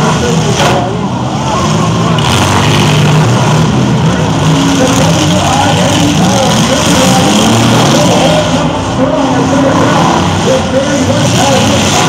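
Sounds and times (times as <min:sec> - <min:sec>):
car engines revving: 0:00.0 - 0:12.0
crowd voices: 0:00.0 - 0:12.0.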